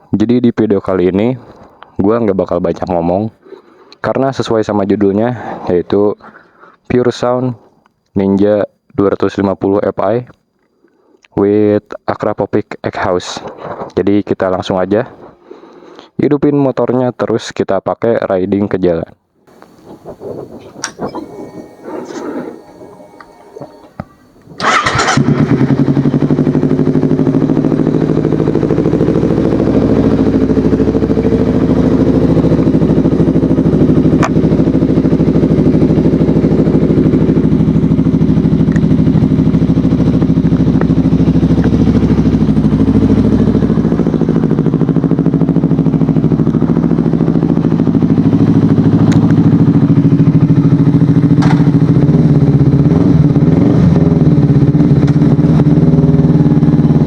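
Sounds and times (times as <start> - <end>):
motorcycle engine starting and idling: 19.5 - 57.0.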